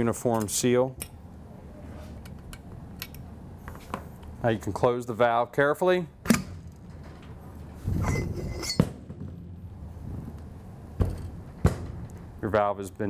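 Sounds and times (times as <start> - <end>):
metal scraping and clinking: 6.9 - 8.9.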